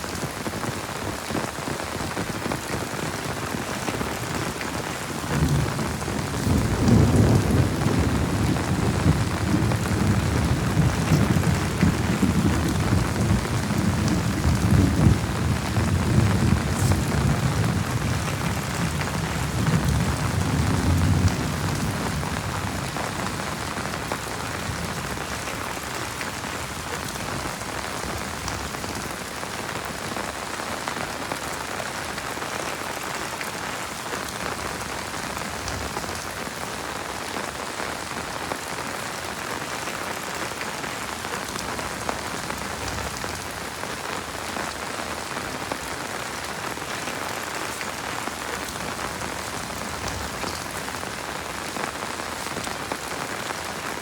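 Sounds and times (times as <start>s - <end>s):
heavy rain falling: 0.0s - 54.0s
deep thunder rumble: 5.2s - 29.1s.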